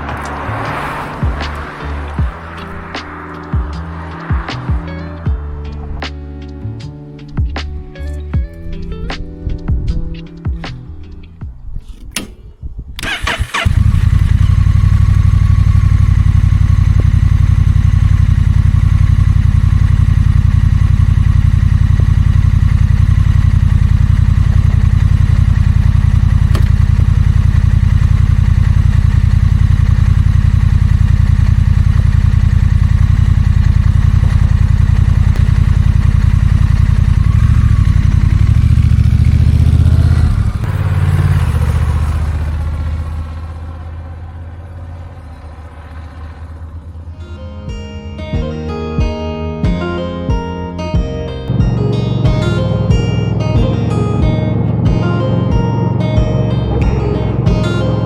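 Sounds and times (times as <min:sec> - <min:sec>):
motorcycle engine idling: 0:00.0 - 0:06.1, 0:13.0 - 0:48.0, 0:51.5 - 0:58.0
motorcycle engine cranking: 0:11.9 - 0:47.3.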